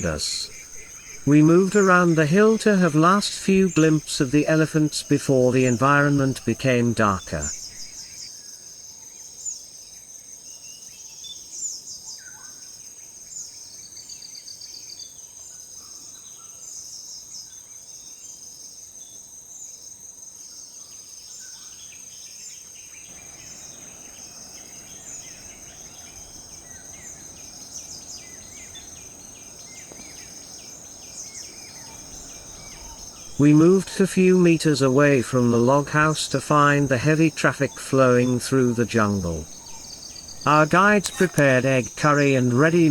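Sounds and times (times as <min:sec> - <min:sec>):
faint low hiss: 0:00.0 - 0:08.1, 0:23.1 - 0:42.9
insects trilling: 0:00.0 - 0:08.3, 0:23.1 - 0:42.9.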